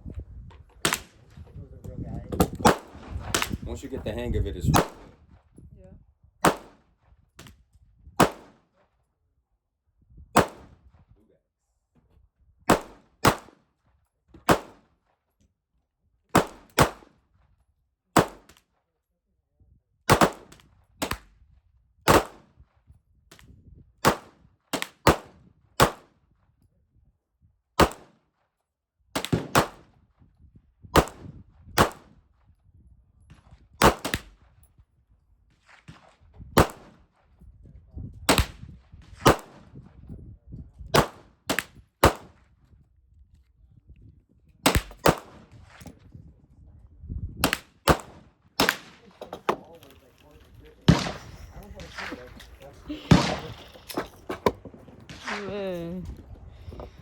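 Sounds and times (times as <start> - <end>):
gunshots: 2.4 - 3.8, 4.7 - 5.2, 6.4 - 6.8, 8.2 - 8.6, 10.4 - 10.7, 12.7 - 13.6, 14.5 - 14.8, 16.4 - 17.1, 18.2 - 18.5, 20.1 - 21.2, 22.1 - 22.5, 24.0 - 26.1, 27.8 - 28.2, 29.2 - 29.9, 31.0 - 32.1, 33.8 - 34.3, 35.7 - 37.0, 39.2 - 39.7, 41.0 - 42.4, 44.6 - 45.9, 47.4 - 57.0.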